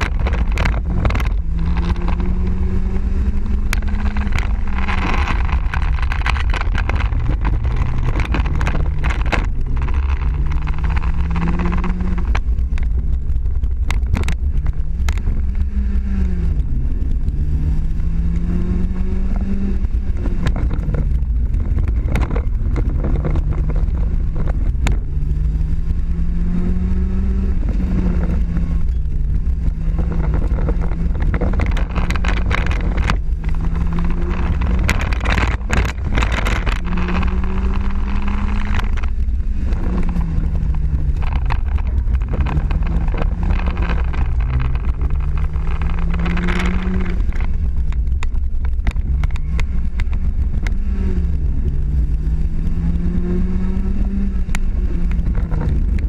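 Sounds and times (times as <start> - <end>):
car engine revving from inside cabin: 14.7 - 47.9, 48.9 - 56.0.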